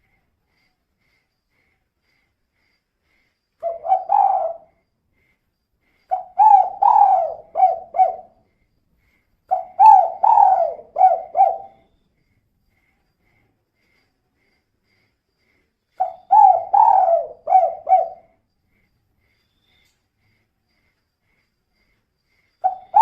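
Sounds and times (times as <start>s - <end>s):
dove cooing: 3.6s - 4.8s, 6.1s - 8.4s, 9.5s - 11.8s, 16.0s - 18.4s, 22.6s - 23.0s.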